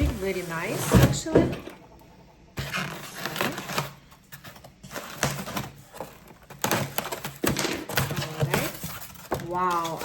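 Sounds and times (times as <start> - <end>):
packaging crinkling and scraping: 2.5 - 10.0.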